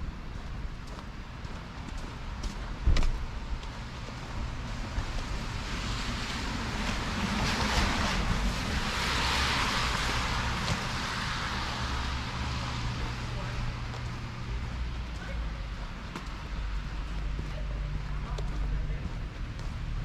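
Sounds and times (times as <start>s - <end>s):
low engine hum: 0.0s - 20.0s
passing vehicle tyre noise: 4.5s - 15.0s.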